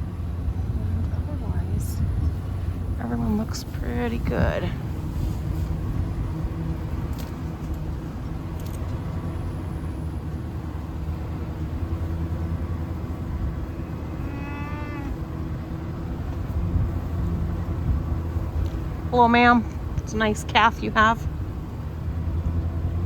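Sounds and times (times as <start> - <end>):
vehicle engine idling: 0.0 - 23.0
cow mooing: 13.6 - 15.5.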